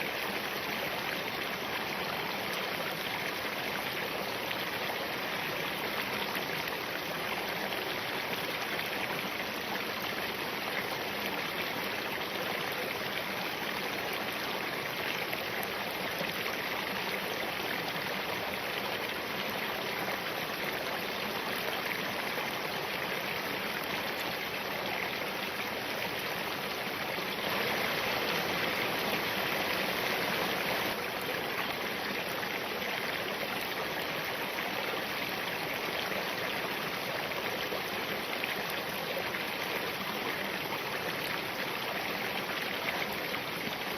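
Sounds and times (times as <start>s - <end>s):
stream rushing over rocks: 0.0s - 43.9s.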